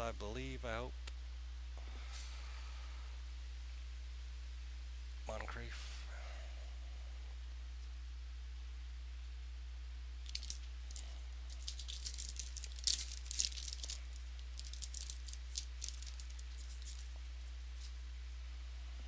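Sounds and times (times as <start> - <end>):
low electrical hum: 0.0 - 19.0
foil wrapper crinkling: 10.2 - 18.0.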